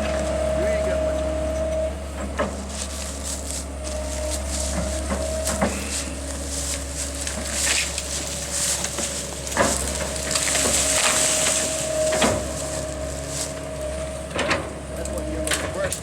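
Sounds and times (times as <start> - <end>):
machine engine running: 0.0 - 16.0
brush and branches crackling: 2.3 - 16.0
branches snapping: 2.7 - 14.1.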